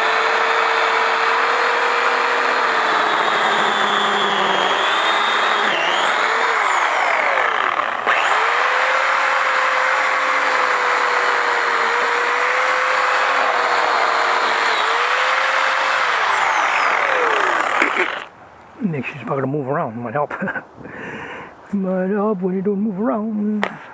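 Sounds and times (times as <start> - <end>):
electric pole saw running: 0.0 - 18.3.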